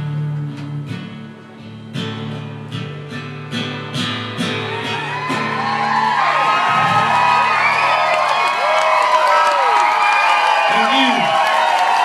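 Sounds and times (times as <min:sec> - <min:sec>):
acoustic guitar strumming: 0:00.0 - 0:07.7
live country band playing: 0:00.0 - 0:08.6
crowd whooping and whistling: 0:04.6 - 0:12.0.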